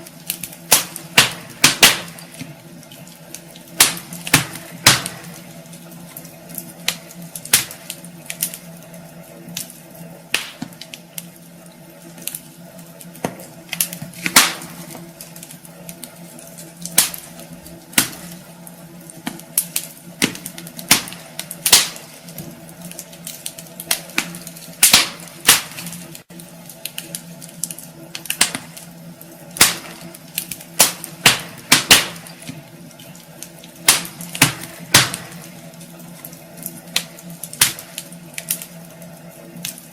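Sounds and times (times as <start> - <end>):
faint steady hum: 0.0 - 39.9
wood fire crackling and popping: 0.0 - 39.9.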